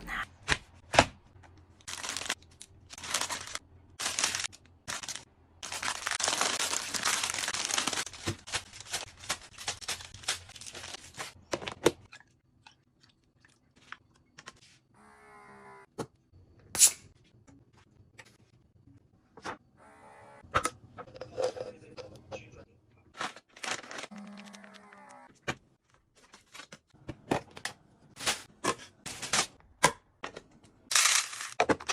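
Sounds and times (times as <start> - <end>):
packaging crinkling and tearing: 1.8 - 11.4, 23.2 - 25.2, 30.9 - 31.9.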